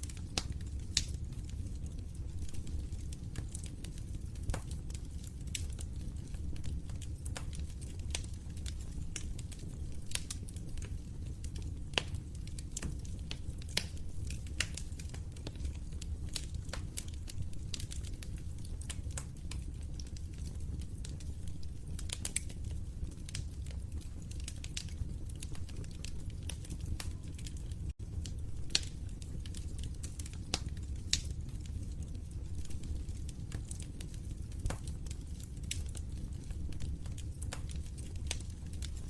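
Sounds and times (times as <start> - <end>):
fire crackling and popping: 0.0 - 39.0
fire rumbling: 0.0 - 39.0.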